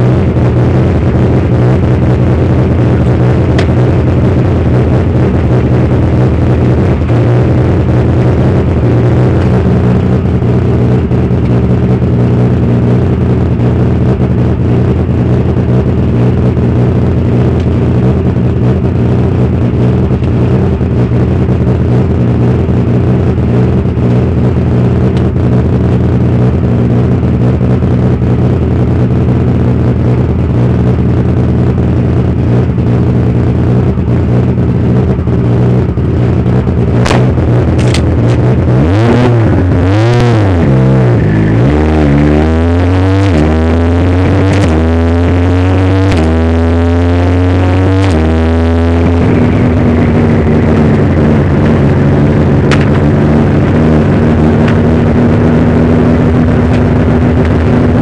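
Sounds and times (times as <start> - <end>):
car engine running steadily: 0.0 - 58.0.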